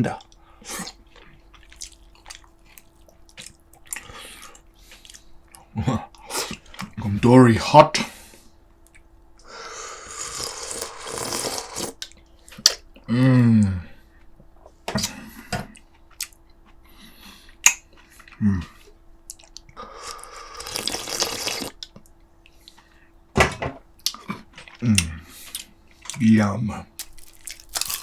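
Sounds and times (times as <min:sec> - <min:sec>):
wet eating and slurping: 0:09.9 - 0:12.7, 0:19.3 - 0:21.8.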